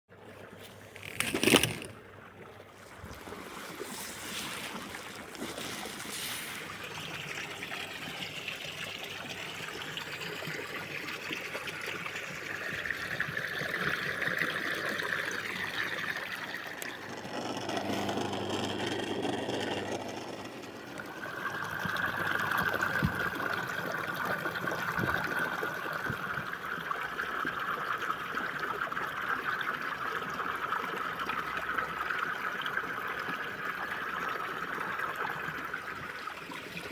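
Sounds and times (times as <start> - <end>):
water rushing around pool vacuum: 2.8 - 29.4.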